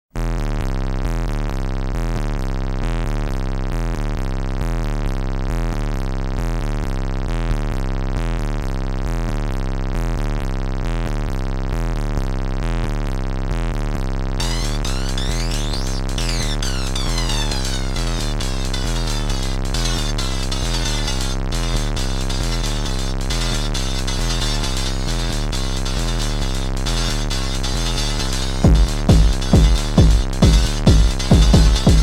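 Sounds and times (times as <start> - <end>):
bass pulse: 0.2 - 32.0
glittering synth sweep: 14.4 - 32.0
techno synthesizer pattern: 14.4 - 32.0.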